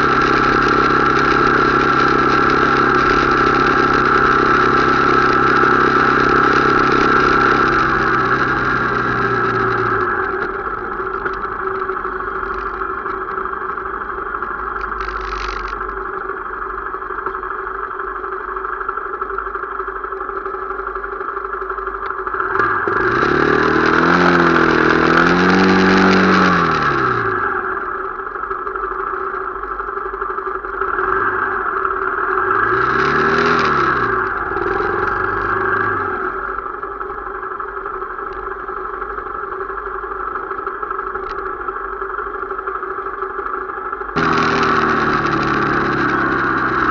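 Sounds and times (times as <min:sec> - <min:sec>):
motorcycle engine revving: 0:00.0 - 0:16.1, 0:20.4 - 0:37.9, 0:39.1 - 0:46.9.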